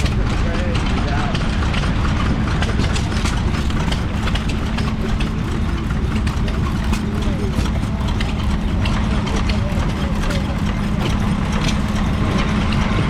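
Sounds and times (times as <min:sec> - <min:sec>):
sharp engine clicks: 0:00.0 - 0:13.0
stationary engine humming: 0:00.0 - 0:13.0
faint voices: 0:02.7 - 0:13.0.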